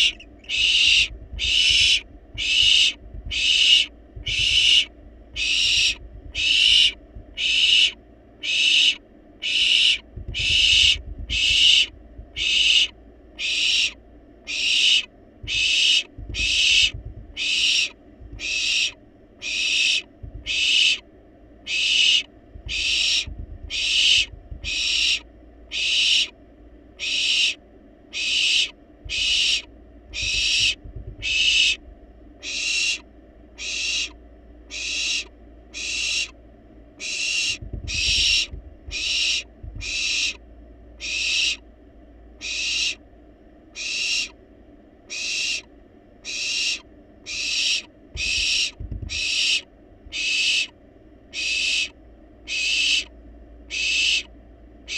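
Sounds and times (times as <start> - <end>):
owl nestlings hissing: 0.0 - 21.0, 21.6 - 26.4, 27.0 - 31.8, 32.4 - 36.4, 37.0 - 40.4, 41.0 - 41.6, 42.4 - 43.0, 43.8 - 44.4, 45.1 - 50.7, 51.3 - 54.3
low bumps: 1.0 - 3.5, 15.4 - 17.4, 20.2 - 20.5, 22.5 - 24.8, 30.1 - 32.1, 37.6 - 39.0.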